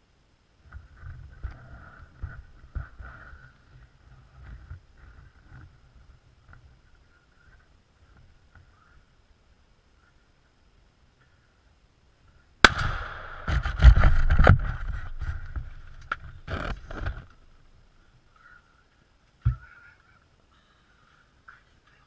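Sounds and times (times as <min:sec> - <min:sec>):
shotgun shot: 0:12.6 - 0:14.6
heavy thumps and sharp knocks: 0:12.6 - 0:17.2.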